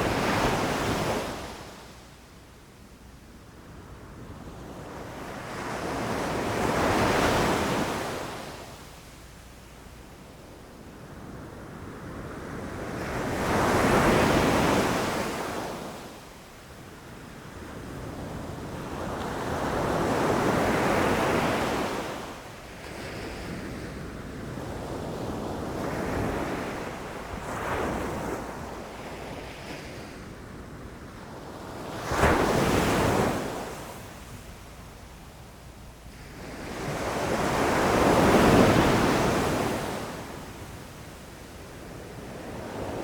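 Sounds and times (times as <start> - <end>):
ocean waves breaking on beach: 0.0 - 1.9, 17.2 - 43.0.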